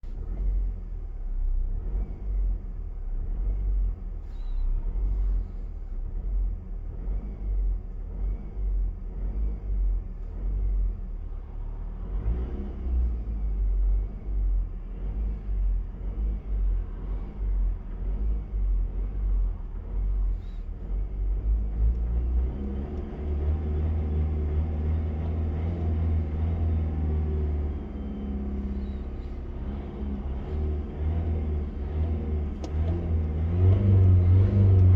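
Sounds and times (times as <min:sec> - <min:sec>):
car engine revving: 0:14.0 - 0:34.9.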